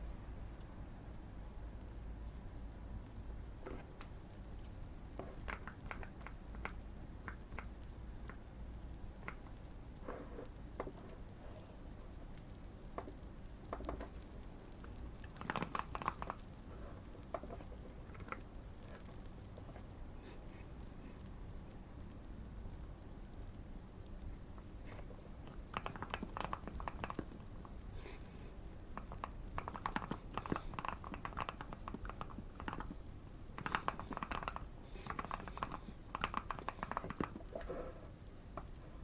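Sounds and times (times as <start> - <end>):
fireplace crackling: 0.1 - 39.0
mechanical keyboard typing: 14.9 - 18.5, 25.6 - 27.5, 29.0 - 37.5.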